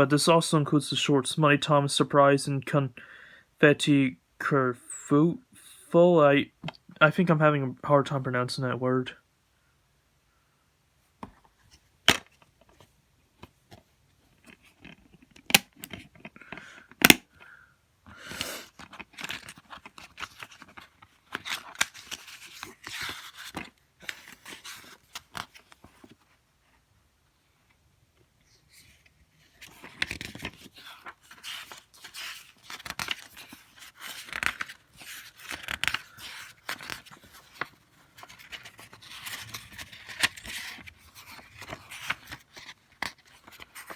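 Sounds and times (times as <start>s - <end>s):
plastic cases clicking: 16.9s - 17.2s.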